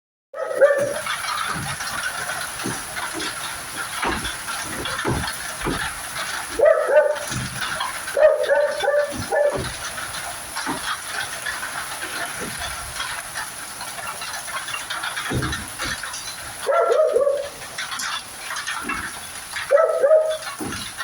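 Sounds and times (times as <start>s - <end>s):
rain and snow falling: 0.4s - 21.0s
low thumps: 0.5s - 13.6s, 14.8s - 16.6s.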